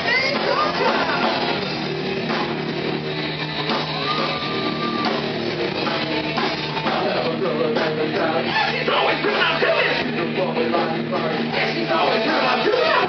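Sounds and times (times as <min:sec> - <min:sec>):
drum kit: 0:00.0 - 0:13.0
electric guitar: 0:00.0 - 0:13.0
person singing: 0:05.9 - 0:13.0.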